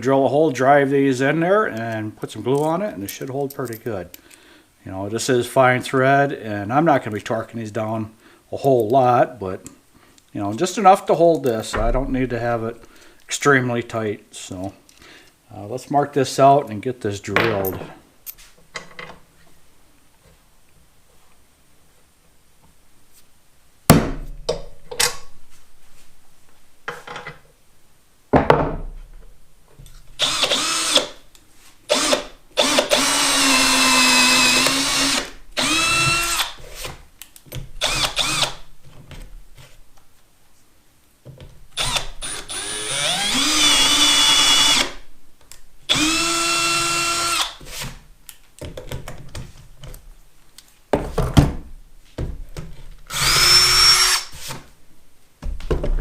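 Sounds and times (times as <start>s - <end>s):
power drill boring wood: 30.2s - 31.2s, 31.9s - 36.6s, 37.8s - 38.6s, 41.8s - 45.0s, 45.9s - 47.6s, 53.1s - 54.3s.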